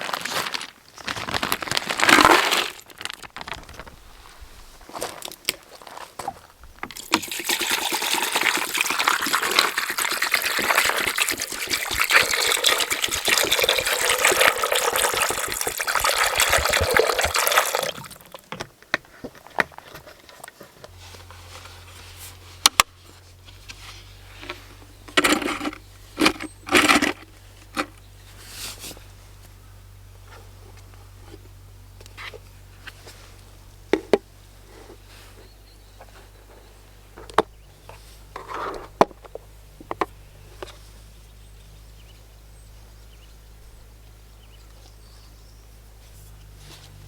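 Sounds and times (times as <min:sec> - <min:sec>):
liquid pouring: 0:06.9 - 0:18.4.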